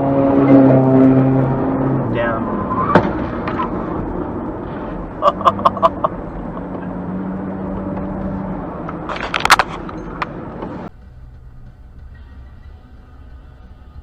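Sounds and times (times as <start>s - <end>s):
vehicle engine and road noise: 0.0s - 14.0s
car collision impacts: 2.7s - 4.3s.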